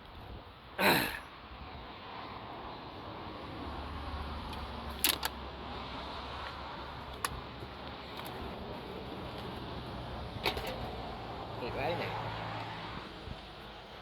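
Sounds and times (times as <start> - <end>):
sharp clicks: 4.5 - 5.4.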